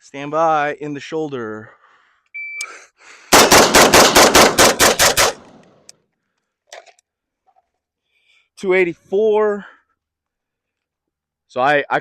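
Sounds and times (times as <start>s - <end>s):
rifle shots: 3.3s - 5.8s.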